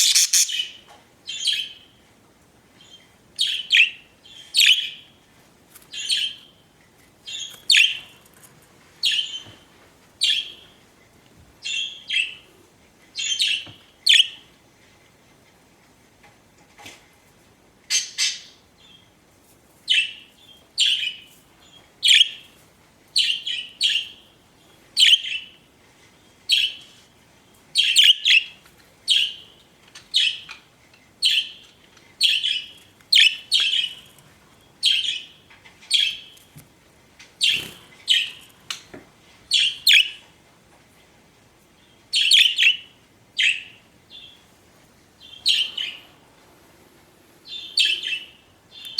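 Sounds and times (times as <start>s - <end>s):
budgerigars chirping: 0.0s - 0.8s, 27.8s - 28.5s, 32.2s - 34.0s, 39.5s - 40.2s, 42.2s - 44.4s, 45.2s - 46.0s, 47.5s - 48.9s.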